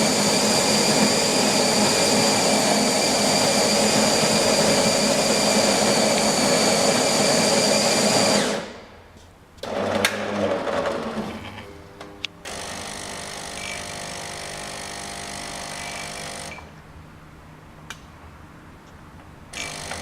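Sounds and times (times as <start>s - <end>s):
coffee grinder whirring: 0.0s - 8.7s.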